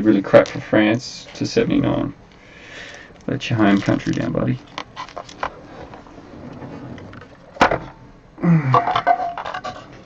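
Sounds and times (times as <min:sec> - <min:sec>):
cards rustling: 0:02.8 - 0:06.1.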